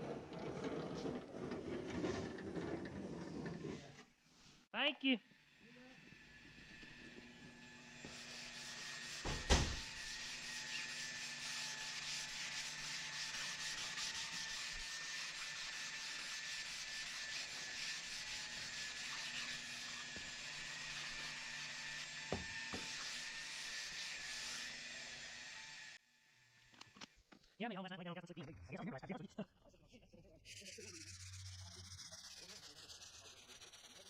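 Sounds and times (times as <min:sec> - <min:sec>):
sanding hiss on metal panel: 0:08.0 - 0:24.7.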